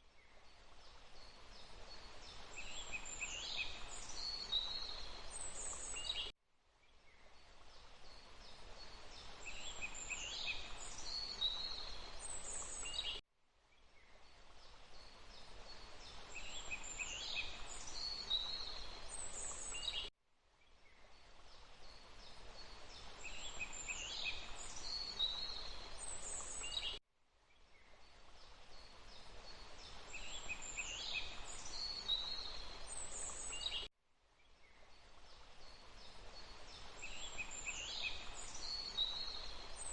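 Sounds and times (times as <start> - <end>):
songbirds chirping: 0.0 - 39.9
steady background hiss: 7.0 - 13.2, 34.7 - 39.9.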